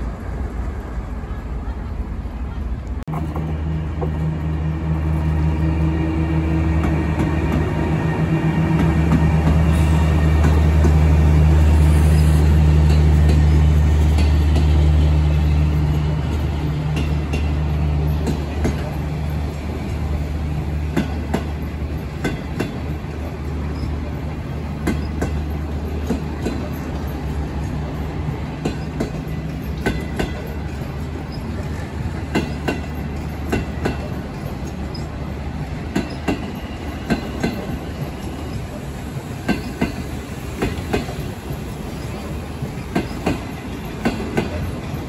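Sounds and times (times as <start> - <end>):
locomotive drone: 0.0 - 45.0
wheels clicking over rail joints: 20.9 - 38.8, 39.4 - 45.0.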